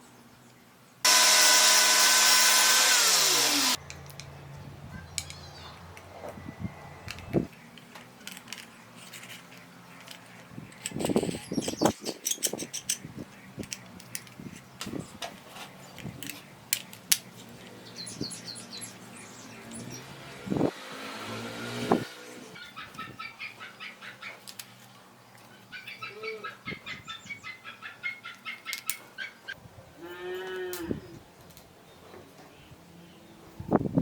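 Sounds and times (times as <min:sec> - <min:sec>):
birds chirping: 0:03.6 - 0:20.7, 0:21.9 - 0:29.6.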